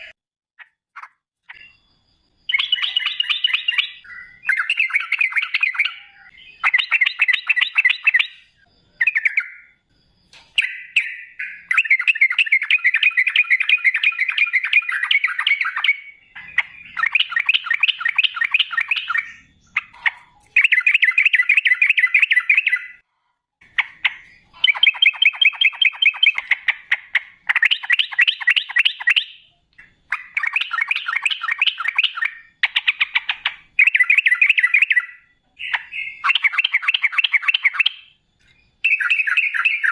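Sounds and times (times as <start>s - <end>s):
bird singing rapid rolling phrases: 0.6s - 9.8s, 10.5s - 23.0s, 23.6s - 39.9s.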